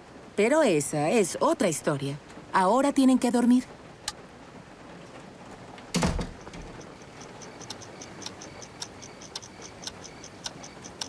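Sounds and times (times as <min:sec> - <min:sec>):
clock ticking: 0:06.4 - 0:11.0.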